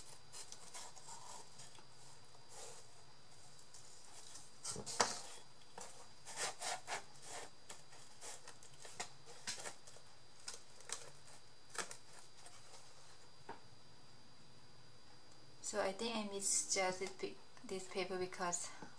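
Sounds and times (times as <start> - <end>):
paper and cardboard rustling: 0.0 - 13.3.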